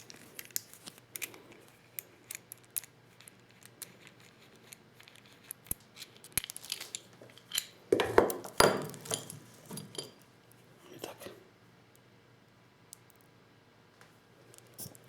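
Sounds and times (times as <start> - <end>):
clicks and clinks of small hard objects: 0.0 - 10.2.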